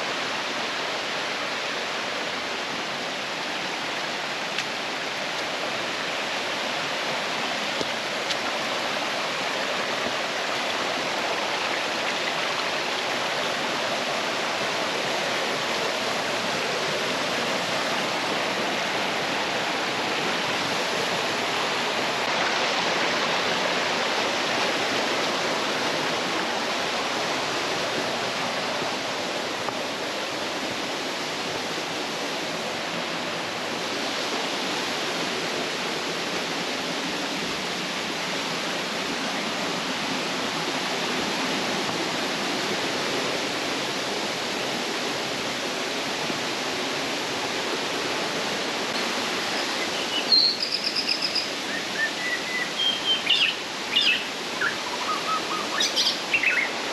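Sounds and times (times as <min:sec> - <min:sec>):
flowing water rushing: 0:00.0 - 0:56.9
bird chirping: 0:49.6 - 0:56.7.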